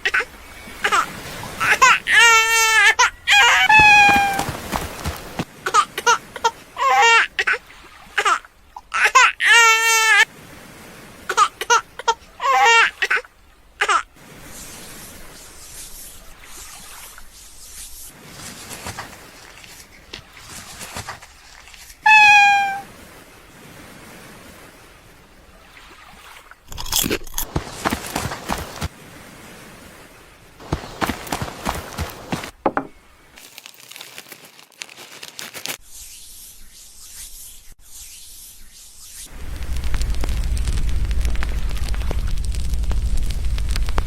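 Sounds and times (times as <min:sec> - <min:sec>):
high-pitched cries: 0:00.0 - 0:04.6, 0:05.7 - 0:07.6, 0:08.2 - 0:10.3, 0:11.7 - 0:13.2, 0:22.1 - 0:22.9
crackling scuffling noise: 0:00.8 - 0:07.6, 0:14.7 - 0:22.8, 0:26.9 - 0:29.0, 0:30.6 - 0:35.9, 0:39.2 - 0:44.0
cat meowing: 0:01.6 - 0:04.5, 0:22.1 - 0:22.8.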